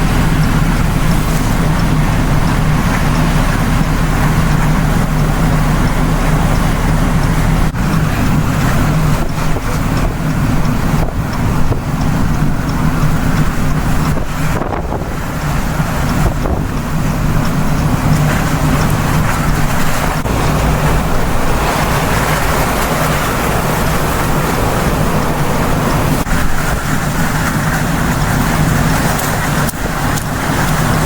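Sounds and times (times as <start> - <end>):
storm wind roaring on microphone: 0.0 - 31.0.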